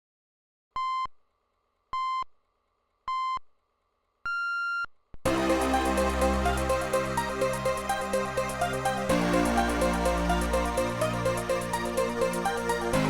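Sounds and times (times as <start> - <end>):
electronic music with steady beat: 5.3 - 13.0.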